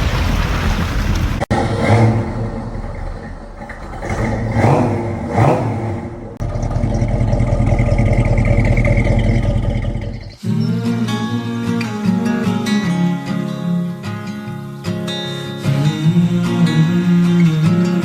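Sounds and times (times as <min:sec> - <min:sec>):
vehicle engine revving: 0:00.0 - 0:10.4
acoustic guitar music: 0:10.4 - 0:18.0.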